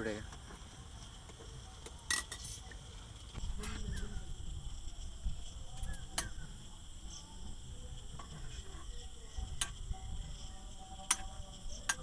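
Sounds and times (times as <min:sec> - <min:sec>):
crickets chirring: 0:03.2 - 0:12.0.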